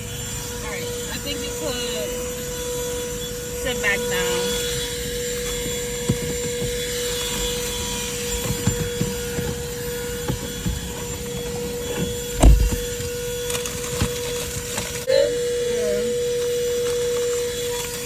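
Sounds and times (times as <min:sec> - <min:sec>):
vacuum cleaner running: 0:00.0 - 0:18.0
nozzle knocking and clicking: 0:12.0 - 0:13.1
loud thump: 0:12.4 - 0:12.9.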